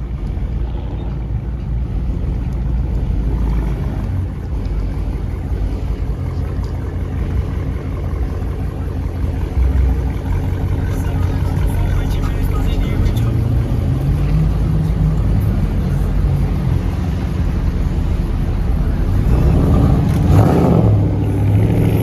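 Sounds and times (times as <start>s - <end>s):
car engines rumbling: 0.0s - 22.0s.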